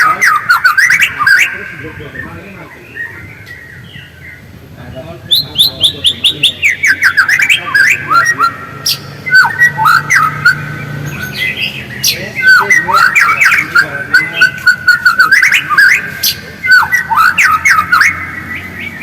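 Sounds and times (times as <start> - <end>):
bird singing whistled notes: 0.0 - 19.0
bird chattering ticks: 5.3 - 19.0.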